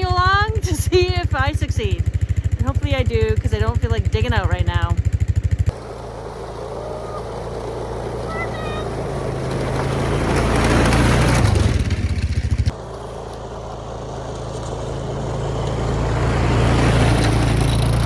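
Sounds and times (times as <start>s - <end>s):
quad engine running: 0.0s - 18.0s.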